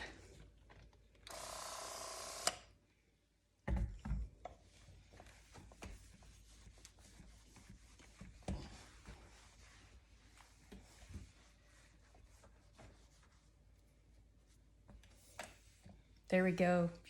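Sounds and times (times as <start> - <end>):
cloth rubbing on glass and steel: 4.8 - 14.6.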